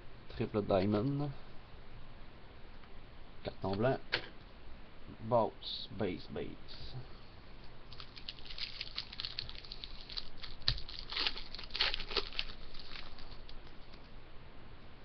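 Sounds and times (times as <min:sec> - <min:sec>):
wrapper crinkling and tearing: 0:07.9 - 0:14.0.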